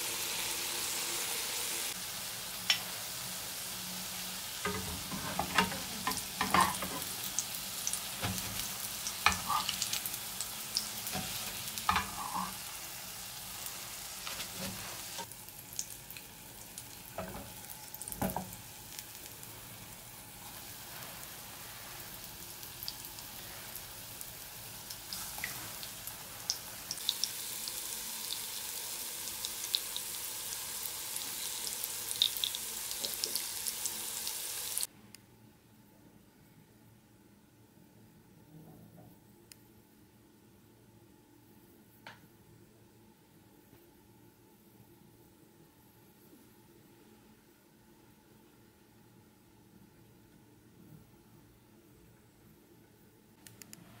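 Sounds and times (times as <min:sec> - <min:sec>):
food sizzling in hot oil: 0:00.0 - 0:34.9.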